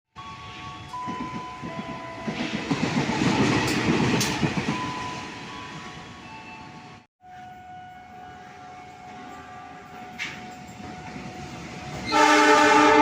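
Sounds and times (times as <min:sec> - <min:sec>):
steady train hum: 0:00.2 - 0:13.0
train wheels rumbling and clattering: 0:00.6 - 0:06.1, 0:09.0 - 0:13.0.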